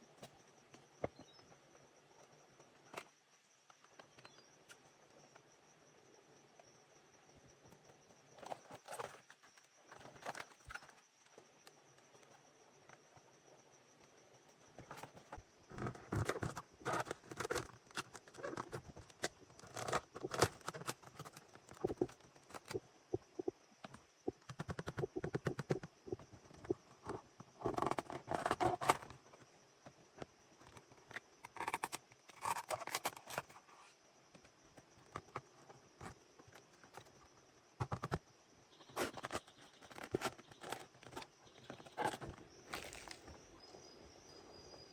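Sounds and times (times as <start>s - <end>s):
hand work clicks and scrapes: 15.8s - 22.8s, 26.6s - 29.2s, 30.7s - 34.0s.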